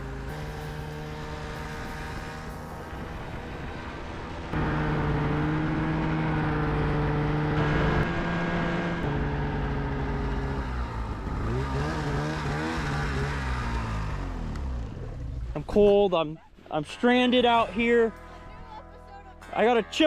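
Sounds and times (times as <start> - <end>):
engine running and revving: 0.0 - 15.6.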